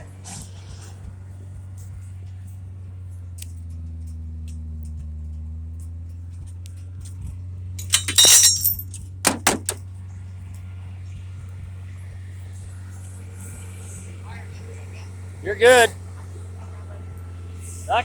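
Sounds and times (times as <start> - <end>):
engine idling hum: 0.0 - 18.0
metallic clinking and rattling: 5.8 - 9.8.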